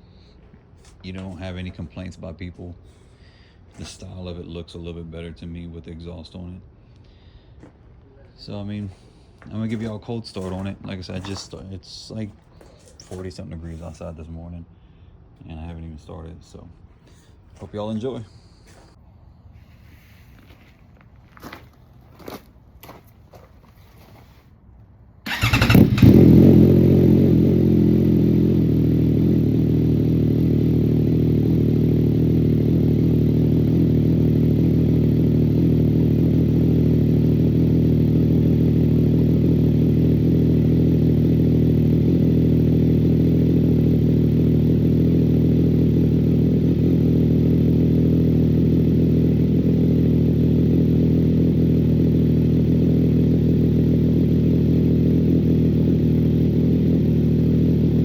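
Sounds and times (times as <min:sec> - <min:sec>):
motorcycle engine idling: 0:25.3 - 0:58.0.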